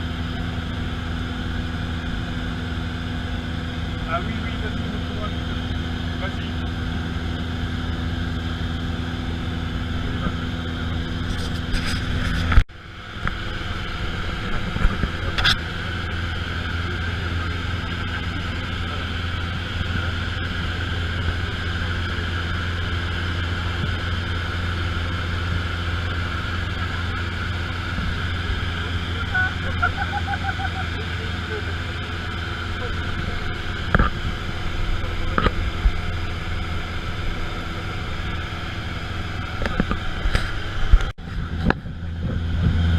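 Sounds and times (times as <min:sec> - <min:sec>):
light aircraft engine drone: 0:00.0 - 0:42.9
low hum: 0:00.0 - 0:42.9.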